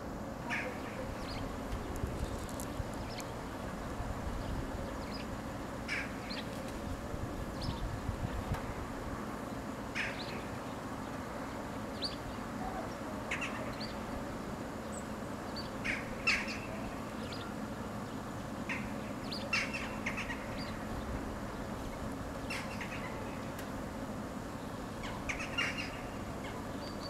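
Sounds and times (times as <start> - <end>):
steady low hum: 0.0 - 27.0
birds chirping: 0.5 - 3.5.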